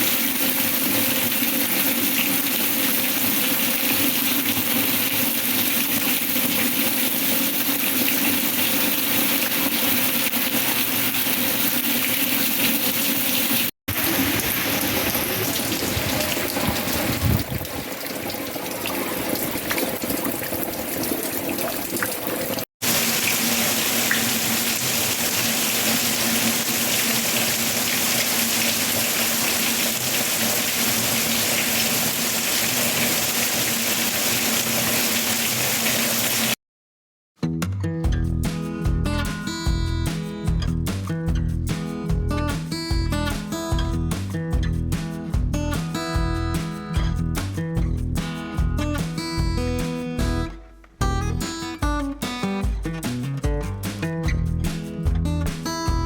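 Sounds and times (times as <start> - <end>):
heavy rain falling: 13.9 - 20.1, 22.8 - 36.6.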